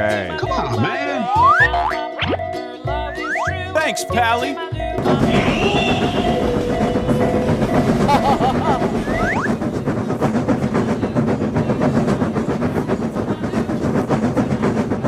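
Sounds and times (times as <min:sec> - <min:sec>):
rising whistle-like glides: 0:03.2 - 0:03.5, 0:05.0 - 0:09.6
train wheels clattering: 0:05.0 - 0:15.0.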